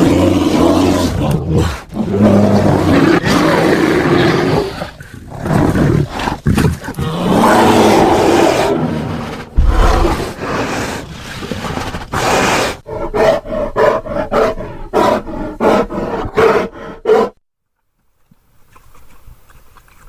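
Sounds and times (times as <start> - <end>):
bear roaring: 6.9 - 17.3.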